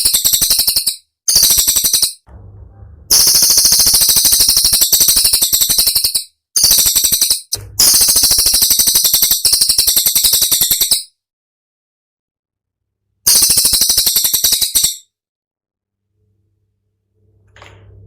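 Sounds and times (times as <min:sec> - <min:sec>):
songbird rapid high-pitched notes: 0:02.8 - 0:11.0, 0:13.3 - 0:15.0.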